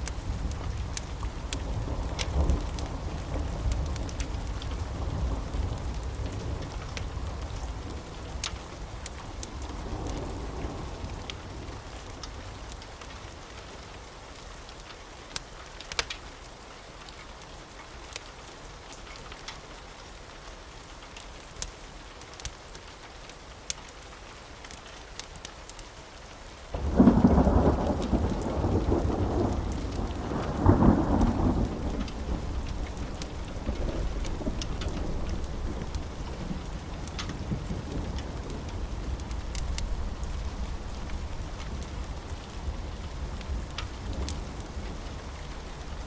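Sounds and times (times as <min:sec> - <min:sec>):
steady rain: 0:00.0 - 0:46.0
thunderclap rumbling: 0:26.8 - 0:46.0.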